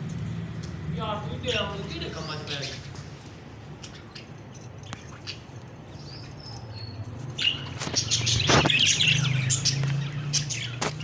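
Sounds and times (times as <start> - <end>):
parrots chirping: 1.0 - 11.0.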